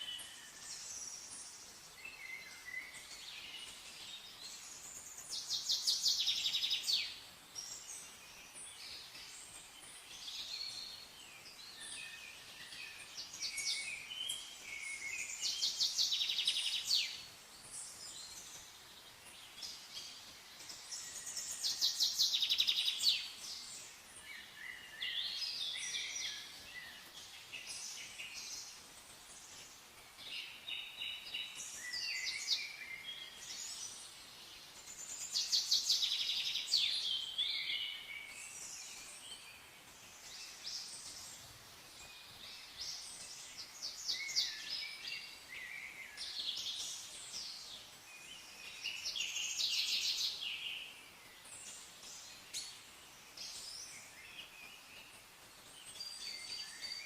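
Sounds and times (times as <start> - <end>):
faint steady hiss: 0.0 - 57.0
songbirds singing: 0.0 - 57.0.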